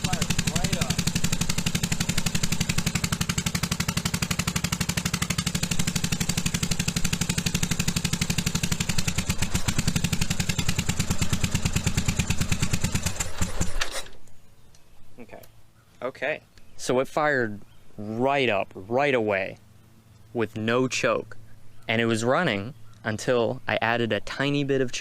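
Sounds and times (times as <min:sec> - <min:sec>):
motorcycle engine idling: 0:00.0 - 0:13.6
engine stalling: 0:00.0 - 0:14.2.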